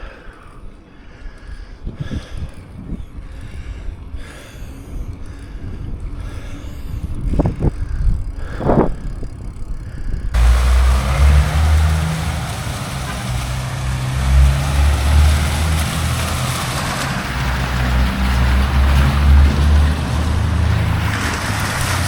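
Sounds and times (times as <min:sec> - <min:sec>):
wind buffeting microphone: 0:00.6 - 0:22.0.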